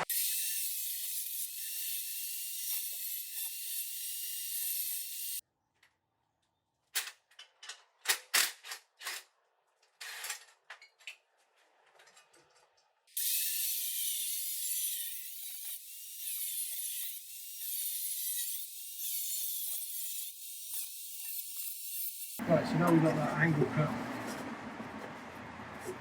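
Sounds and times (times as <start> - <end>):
power cutter cutting steel pipe: 0.0 - 5.4, 13.2 - 23.7.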